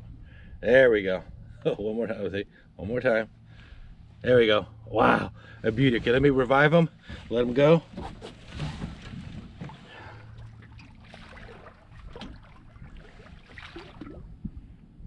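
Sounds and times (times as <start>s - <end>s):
wind rumble: 5.6s - 15.0s
water splashing against boat: 5.7s - 15.0s.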